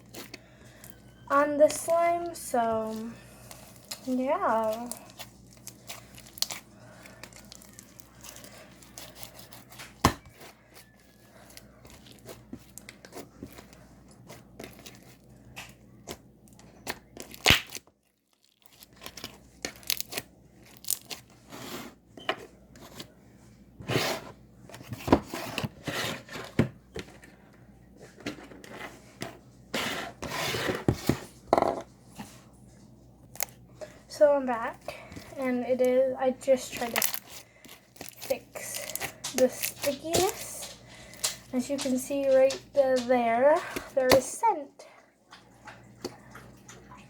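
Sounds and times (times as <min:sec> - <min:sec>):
slime being kneaded and pulled: 0:01.3 - 0:21.6, 0:33.3 - 0:44.3.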